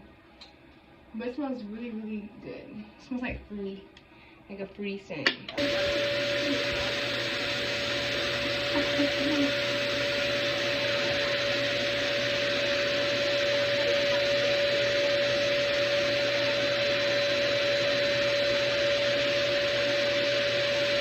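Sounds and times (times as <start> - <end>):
hair dryer fan rushing air: 5.5 - 21.0.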